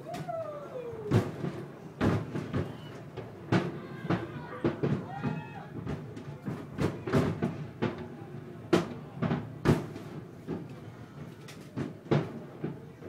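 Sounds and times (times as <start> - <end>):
fireworks exploding: 1.0 - 8.1, 8.7 - 10.7.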